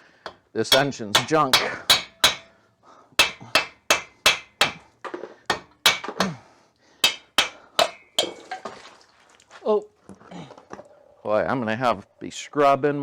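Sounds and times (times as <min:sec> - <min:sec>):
hammer striking metal: 0:00.3 - 0:02.6, 0:03.2 - 0:04.9, 0:05.5 - 0:06.3, 0:07.0 - 0:08.4.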